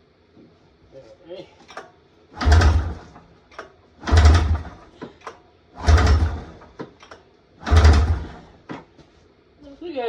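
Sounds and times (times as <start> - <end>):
snowmobile engine turning over: 2.4 - 3.2, 4.0 - 4.8, 5.8 - 6.6, 7.6 - 8.5.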